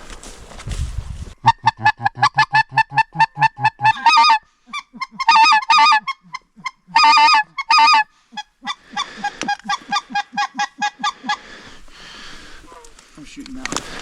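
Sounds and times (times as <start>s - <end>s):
goose honking and clucking: 1.4s - 11.8s.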